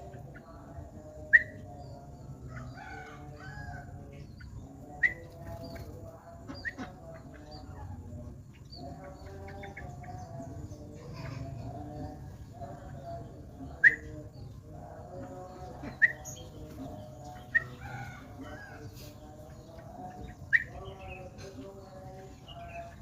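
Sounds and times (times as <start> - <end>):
birds twittering: 0.0 - 23.0
rooster crowing: 2.5 - 3.9, 17.6 - 19.1.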